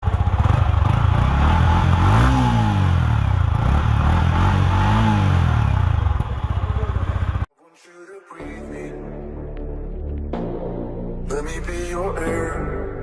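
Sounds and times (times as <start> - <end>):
motorcycle engine idling and revving: 0.0 - 7.5.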